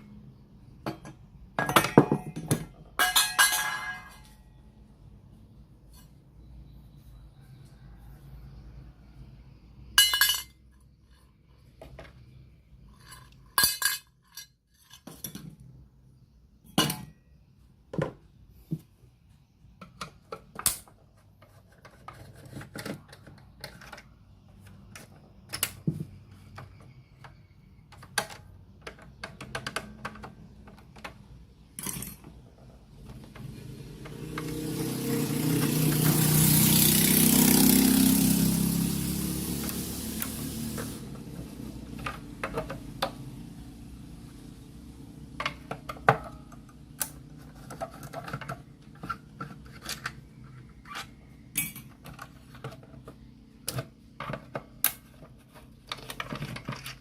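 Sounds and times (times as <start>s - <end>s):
metal tools clinking on workbench: 0.9s - 4.5s, 10.0s - 10.7s, 12.9s - 15.6s, 31.7s - 32.4s, 51.0s - 52.3s
hiss: 38.8s - 41.0s.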